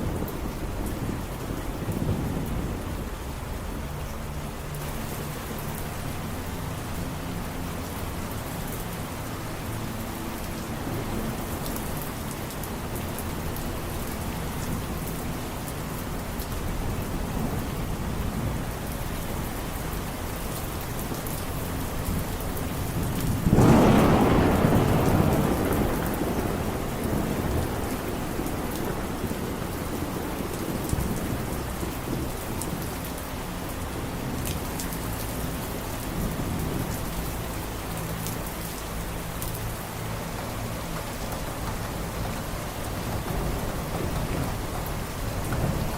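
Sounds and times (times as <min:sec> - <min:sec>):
thunder clap rumbling: 0:00.0 - 0:03.9, 0:22.0 - 0:33.0, 0:41.3 - 0:45.9
steady rain falling: 0:00.0 - 0:45.9.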